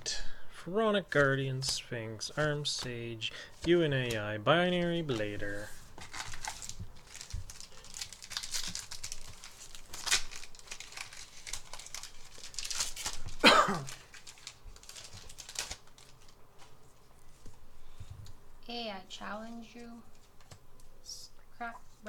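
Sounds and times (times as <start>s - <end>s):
foil wrapper crinkling and tearing: 5.1s - 16.4s.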